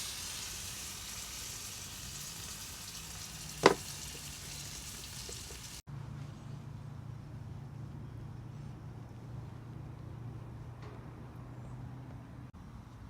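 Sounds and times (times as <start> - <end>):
food sizzling in a frying pan: 0.0 - 5.8.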